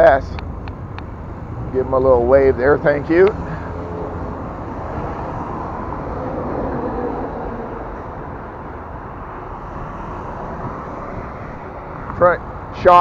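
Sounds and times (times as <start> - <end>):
wind rushing past microphone: 0.0 - 13.0
bicycle tyres rolling on pavement: 0.1 - 13.0.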